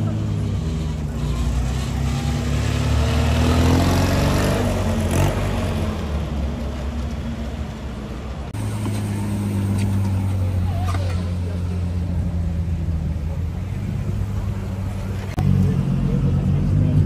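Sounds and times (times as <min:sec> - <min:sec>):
sports car engine accelerating: 0:00.0 - 0:07.5.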